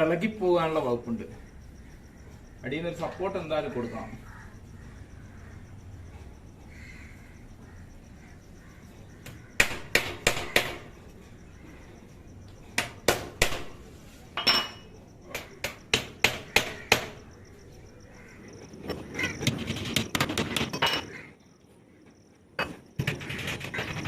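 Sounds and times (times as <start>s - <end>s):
hammer striking nails: 9.2s - 11.0s, 12.8s - 13.8s, 15.3s - 17.2s.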